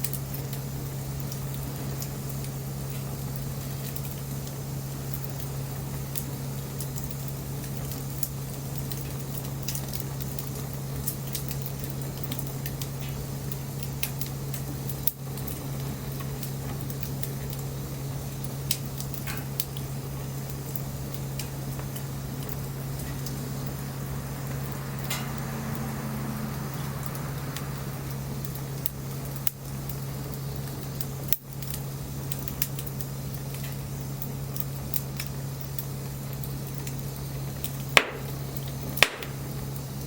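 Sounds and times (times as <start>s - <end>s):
bonfire crackling: 0.0s - 40.0s
steady low hum: 0.0s - 40.0s
sharp wood pops: 38.0s - 38.4s, 39.0s - 39.4s.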